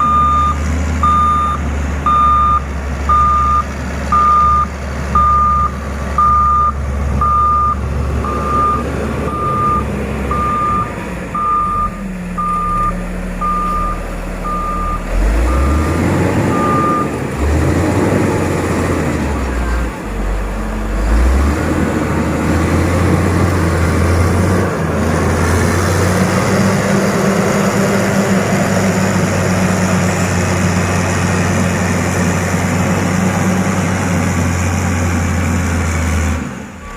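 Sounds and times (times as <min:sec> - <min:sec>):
reversing alarm beeping: 0:00.0 - 0:17.1
diesel engine running: 0:00.0 - 0:36.9.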